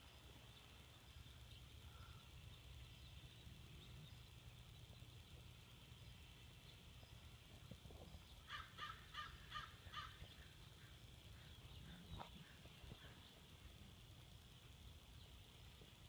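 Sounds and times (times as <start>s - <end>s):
crow cawing: 8.5s - 10.2s.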